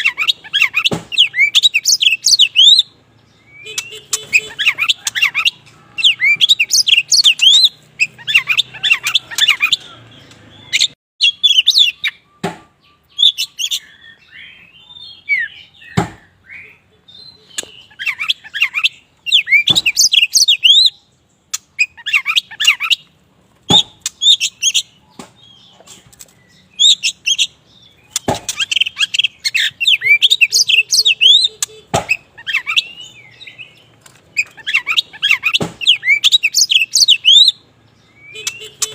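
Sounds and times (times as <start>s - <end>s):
bird singing chirps and whistles: 0.0s - 23.1s, 23.7s - 38.9s
sharp knocks: 0.9s - 1.3s, 12.4s - 12.7s, 16.0s - 16.3s, 23.6s - 24.1s, 28.1s - 28.7s, 31.9s - 32.2s, 35.5s - 35.9s.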